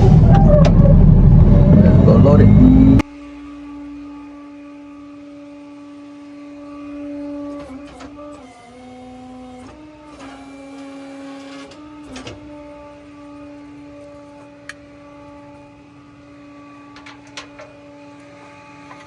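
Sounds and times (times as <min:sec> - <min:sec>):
hydraulic pump whining: 0:00.0 - 0:05.3, 0:05.9 - 0:19.0.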